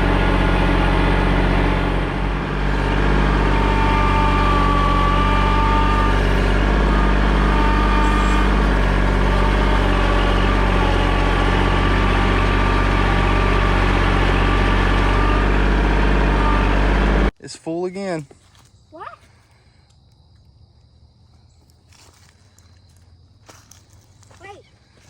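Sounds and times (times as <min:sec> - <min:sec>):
engine humming steadily: 0:00.0 - 0:17.4.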